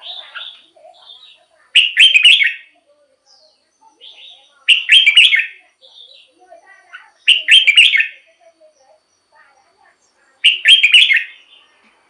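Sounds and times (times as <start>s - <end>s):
bird singing warbled phrase: 0.0s - 11.8s
soft bird chirps: 0.0s - 12.0s.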